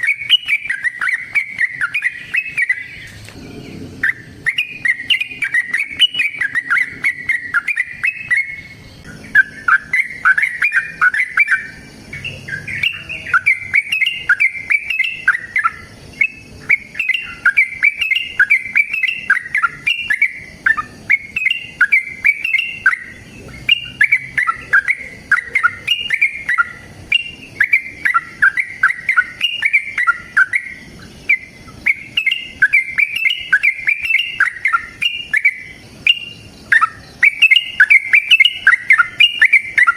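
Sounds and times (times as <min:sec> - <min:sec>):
bulbul chattering song: 0:00.0 - 0:39.9.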